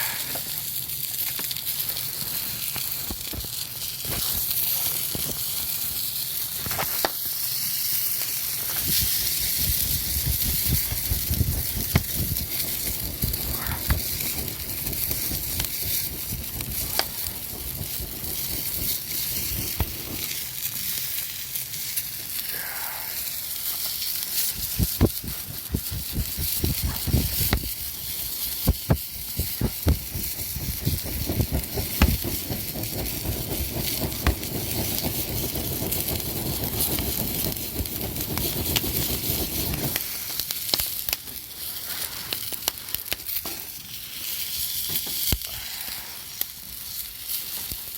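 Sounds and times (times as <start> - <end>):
campfire hissing: 0.0 - 47.9
fire crackles and pops: 0.0 - 47.9
low rumble: 24.6 - 36.6.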